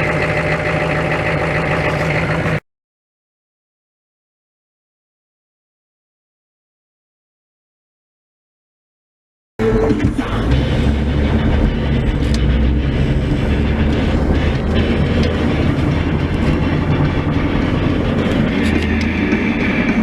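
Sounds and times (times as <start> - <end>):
diesel engine low rumble: 0.0 - 2.6, 9.6 - 20.0.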